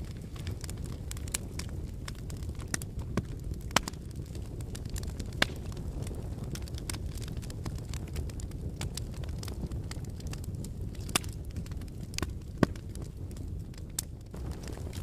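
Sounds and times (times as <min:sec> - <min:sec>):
fire crackles and pops: 0:00.0 - 0:15.0
low rumble of flames: 0:00.0 - 0:15.0.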